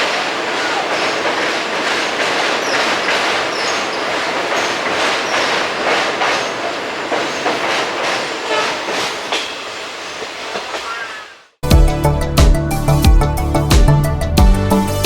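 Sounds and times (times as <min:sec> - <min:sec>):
wheels clickety-clack over rail joints: 0:00.0 - 0:11.4
train coach rolling rumble: 0:00.0 - 0:15.0
wheel squeals: 0:02.6 - 0:06.6.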